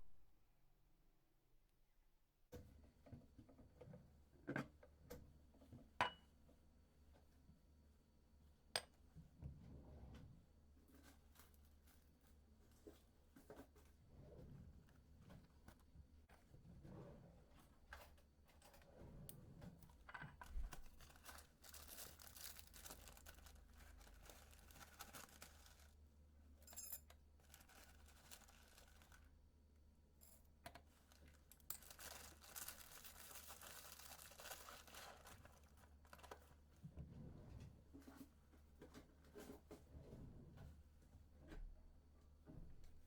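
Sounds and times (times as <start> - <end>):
faint rustling: 16.8 - 26.0, 27.4 - 29.3, 30.9 - 36.8.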